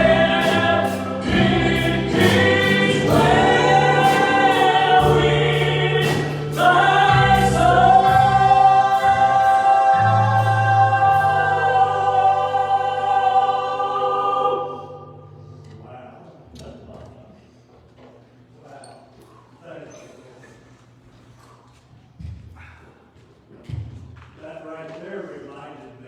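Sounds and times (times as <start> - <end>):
instrumental accompaniment: 0.0 - 13.3
steady bass line: 0.0 - 14.0
gospel choir singing: 0.0 - 15.6.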